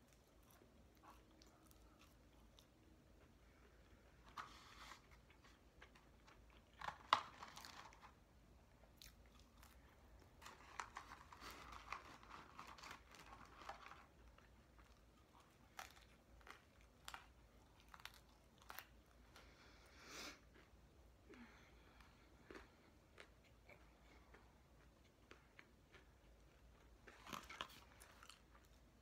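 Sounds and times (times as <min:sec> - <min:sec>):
chewing and crunching: 0:00.0 - 0:19.8, 0:20.4 - 0:29.0
paper wrapper rustling: 0:10.4 - 0:14.2.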